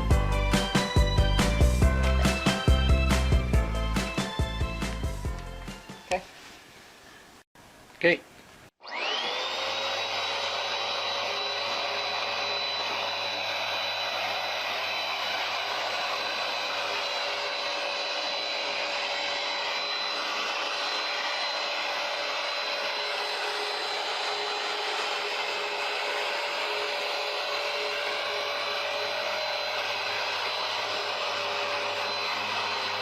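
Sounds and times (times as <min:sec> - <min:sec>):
carpet cleaner motor whining: 0:08.8 - 0:33.0.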